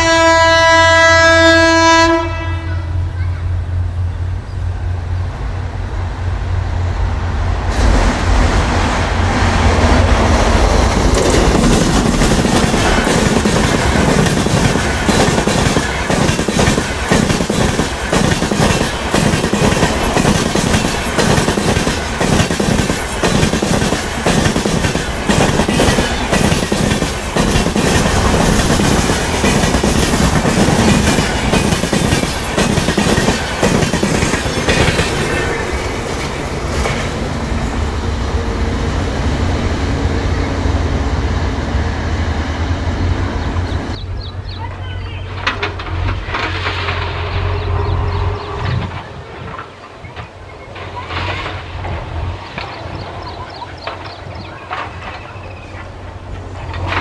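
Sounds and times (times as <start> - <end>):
distant train rumble: 0.0 - 57.0
train wheels clattering over rail joints: 10.4 - 37.4, 45.3 - 57.0.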